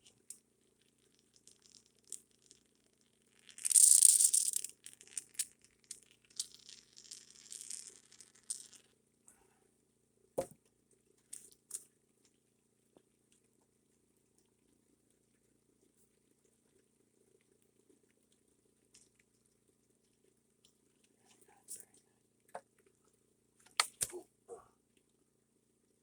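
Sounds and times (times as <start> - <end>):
faint steady hum: 7.9 - 26.0.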